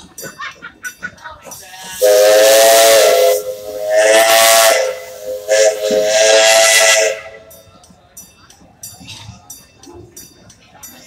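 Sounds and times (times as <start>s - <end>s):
steam hissing: 1.6s - 7.6s
steam whistle chord: 2.0s - 7.5s.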